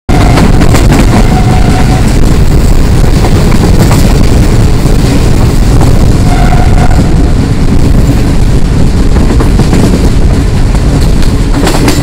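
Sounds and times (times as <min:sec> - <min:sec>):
rushing air: 0:00.1 - 0:12.0
train coaches rumbling and clattering: 0:00.1 - 0:12.0.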